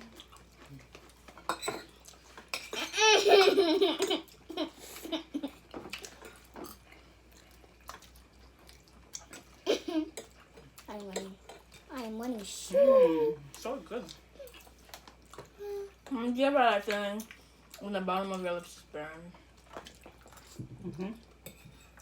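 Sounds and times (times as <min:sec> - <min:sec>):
high-pitched laughter: 0:02.8 - 0:05.5.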